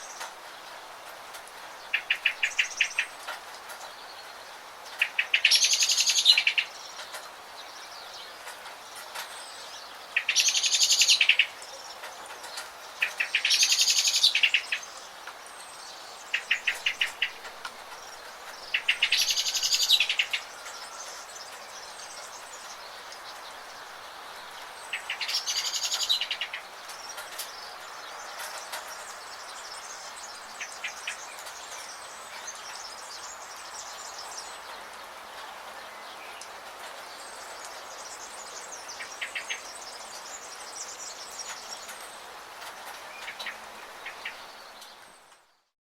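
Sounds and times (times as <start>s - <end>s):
steady hiss: 0.0s - 45.5s
songbird trilling: 10.2s - 11.6s, 13.0s - 15.0s, 18.6s - 21.1s, 24.9s - 26.7s.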